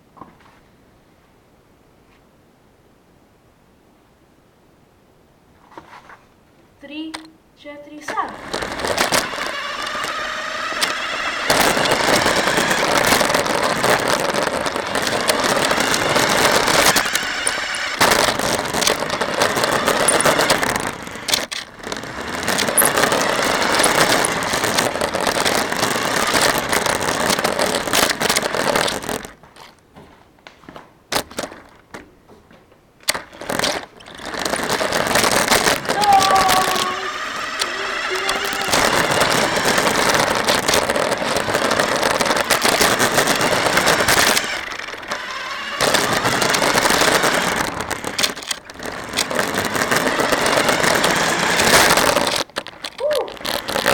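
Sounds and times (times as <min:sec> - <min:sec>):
clicks: 0:07.1 - 0:07.4, 0:08.0 - 0:29.8, 0:33.0 - 0:53.9
toy car motor running: 0:08.1 - 0:29.7, 0:33.1 - 0:53.9
rattling and scraping: 0:08.1 - 0:32.0, 0:33.0 - 0:53.9.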